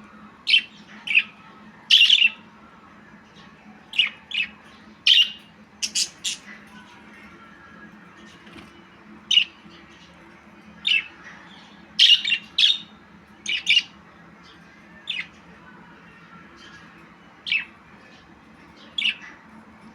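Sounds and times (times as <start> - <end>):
budgerigar chirping and squawking: 5.1 - 6.6.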